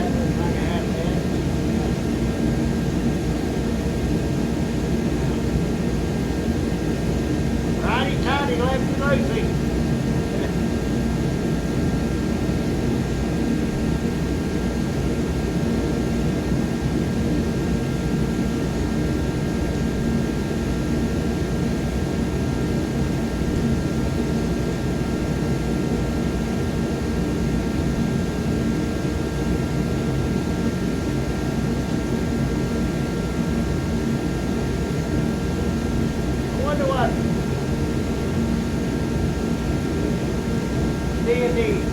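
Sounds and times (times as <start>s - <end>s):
space heater rushing: 0.0s - 11.9s
faint steady tones: 7.6s - 10.8s.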